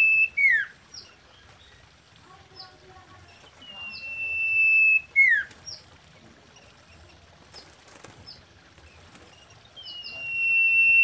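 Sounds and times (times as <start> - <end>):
bird whistling: 0.0 - 0.7, 3.6 - 5.5, 9.8 - 11.0.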